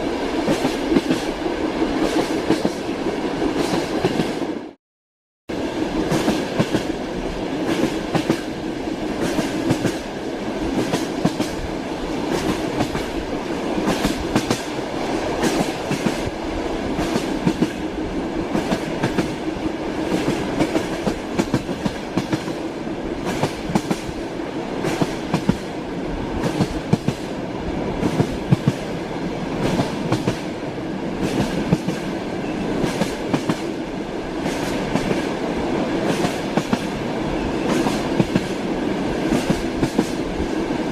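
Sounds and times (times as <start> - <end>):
train wheels clattering over rails: 9.2 - 10.1, 13.8 - 17.8, 18.5 - 19.4, 20.0 - 22.6, 23.2 - 25.7, 26.4 - 27.3, 28.0 - 29.0, 29.6 - 30.5, 31.2 - 33.8, 34.4 - 35.3, 36.0 - 38.6, 39.2 - 40.3.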